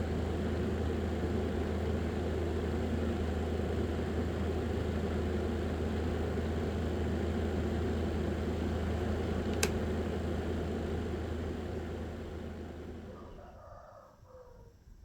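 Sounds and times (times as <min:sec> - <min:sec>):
electric fan motor humming: 0:00.0 - 0:13.2
sharp click: 0:09.5 - 0:09.8.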